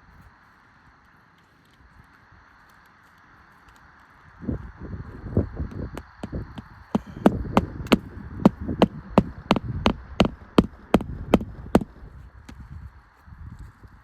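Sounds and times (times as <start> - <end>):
sharp evenly spaced knocks: 5.8 - 12.6.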